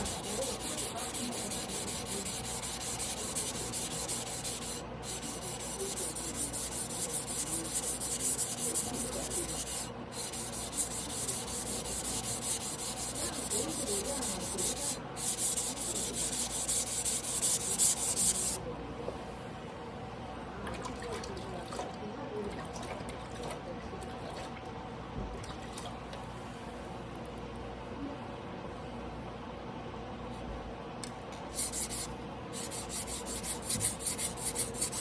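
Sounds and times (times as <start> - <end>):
knife scraping on whetstone: 0.0 - 18.6, 31.6 - 35.0.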